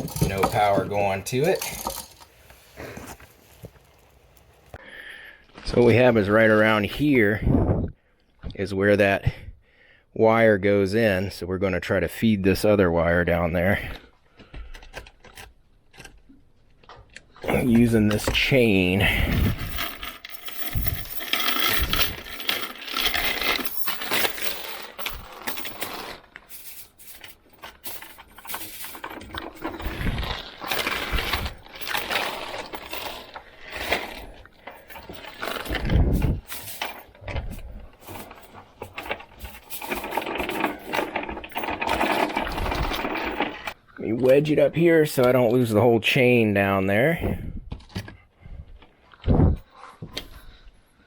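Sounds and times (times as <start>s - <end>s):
metal chain rattling: 0.0s - 2.3s, 17.4s - 43.8s.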